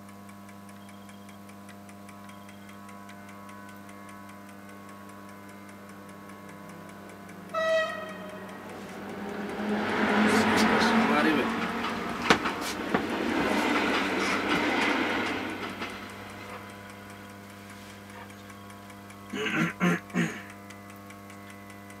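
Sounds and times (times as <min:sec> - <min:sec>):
low steady hum: 0:00.2 - 0:22.0
loud pitched horn blasts: 0:07.4 - 0:13.1
wheels clicking over rail joints: 0:08.0 - 0:17.3.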